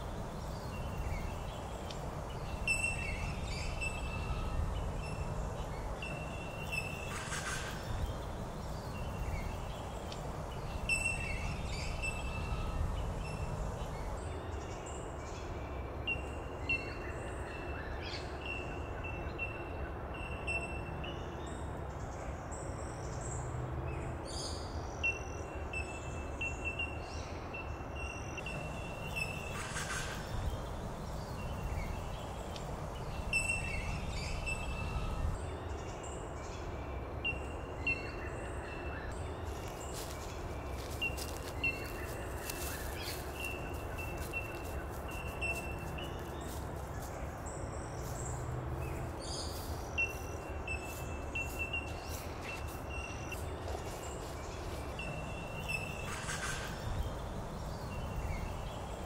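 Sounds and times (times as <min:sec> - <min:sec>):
low outdoor rumble: 0:00.0 - 0:15.7, 0:28.4 - 0:36.9.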